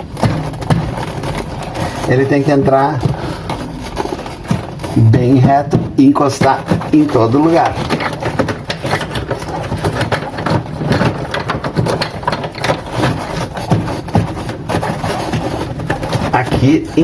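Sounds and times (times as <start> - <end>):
refrigerator low hum: 0.0 - 17.0
plastic panel clicks and knocks: 5.7 - 16.4.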